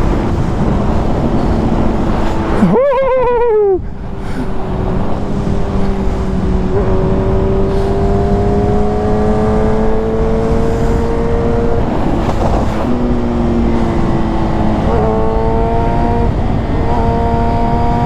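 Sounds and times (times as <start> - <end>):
motorcycle engine revving: 0.0 - 2.9, 4.0 - 18.0
heavy wind rush: 0.0 - 18.0.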